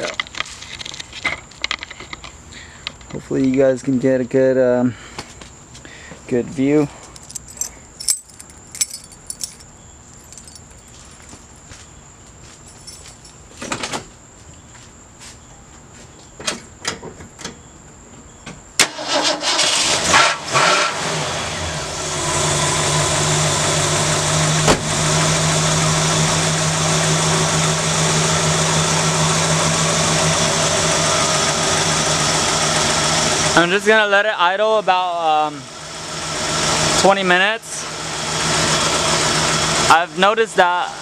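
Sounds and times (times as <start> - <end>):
car engine cranking and starting: 18.8 - 33.6.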